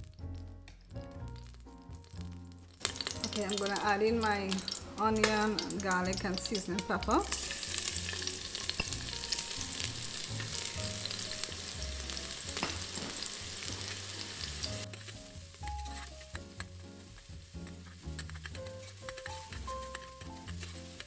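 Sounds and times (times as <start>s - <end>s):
vegetables sizzling in hot oil: 1.4s - 21.0s
metal spoon stirring: 15.8s - 16.4s, 17.8s - 21.0s.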